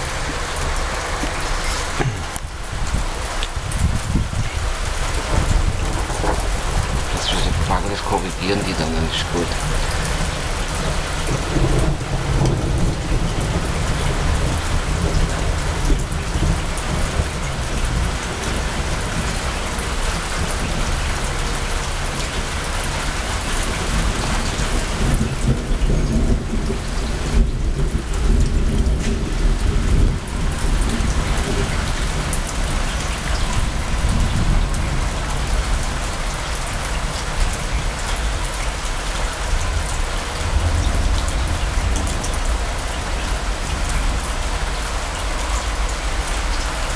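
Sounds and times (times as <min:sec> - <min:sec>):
heavy rain pouring: 0:00.0 - 0:46.9
low thunder rumbling: 0:00.0 - 0:46.9.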